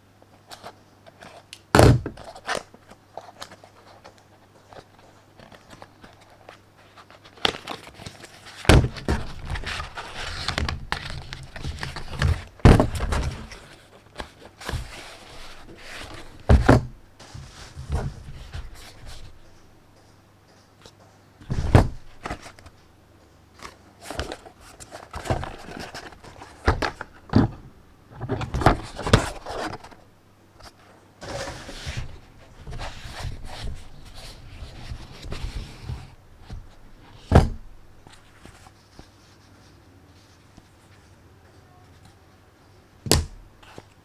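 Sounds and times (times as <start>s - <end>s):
cardboard rustling and sliding: 3.3s - 19.7s, 21.4s - 22.7s, 23.6s - 39.4s
box and device knocks: 43.1s - 43.4s.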